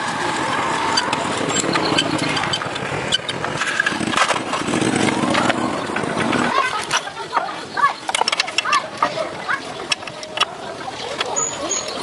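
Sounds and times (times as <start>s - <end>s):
engine running: 0.0s - 10.9s
clicks and knocks: 0.9s - 9.2s.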